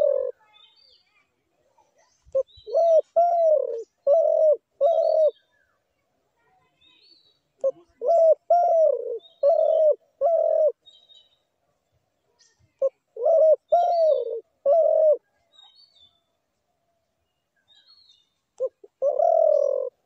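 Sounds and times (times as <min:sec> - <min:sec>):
dove cooing: 0:00.0 - 0:00.4, 0:02.3 - 0:05.4, 0:07.6 - 0:10.8, 0:12.8 - 0:15.4, 0:18.6 - 0:20.0
small birds chirping: 0:00.0 - 0:20.0.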